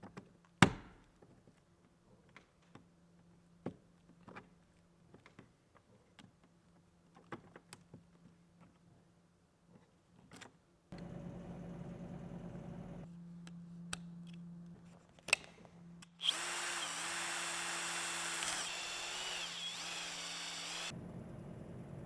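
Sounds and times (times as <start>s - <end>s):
power tool motor running: 16.2s - 20.9s.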